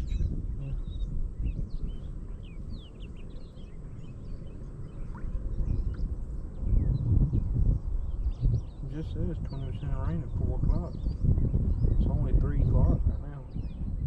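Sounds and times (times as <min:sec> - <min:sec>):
small birds chirping: 0:00.0 - 0:14.0
steady low rumble: 0:00.0 - 0:14.0.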